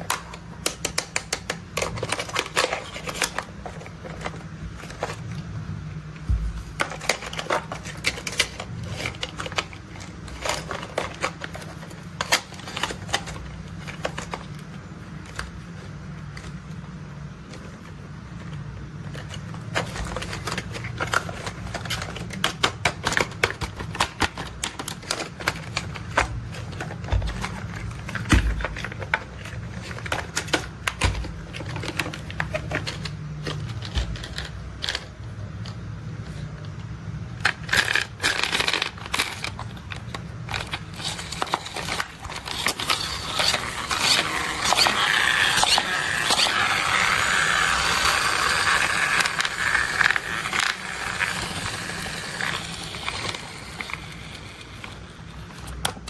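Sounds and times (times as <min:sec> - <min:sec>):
plastic toy vehicles clicking: 0:00.0 - 0:05.3, 0:19.1 - 0:36.4, 0:37.4 - 0:56.0
steady low hum: 0:01.6 - 0:56.0.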